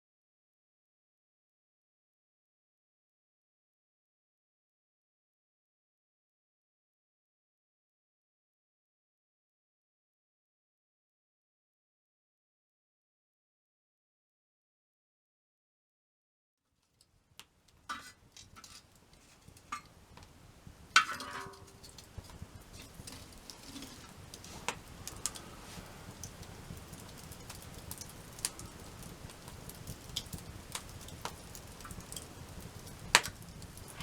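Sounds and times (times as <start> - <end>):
faint steady hiss: 16.7 - 34.0
campfire crackling and popping: 16.9 - 34.0.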